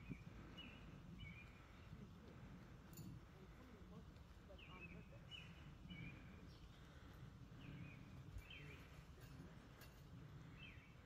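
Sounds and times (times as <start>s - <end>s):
faint bird chirps: 0.0s - 2.0s, 4.5s - 9.1s.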